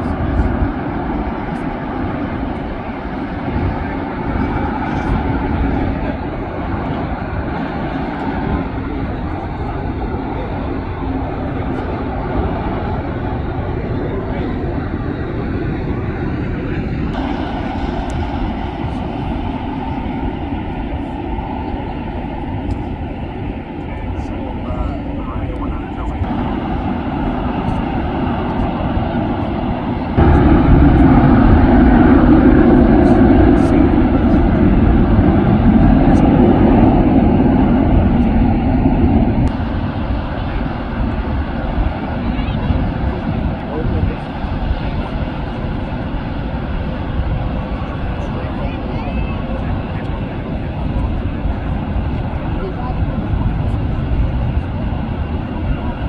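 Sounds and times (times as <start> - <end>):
jet engine rush: 0.0 - 56.0.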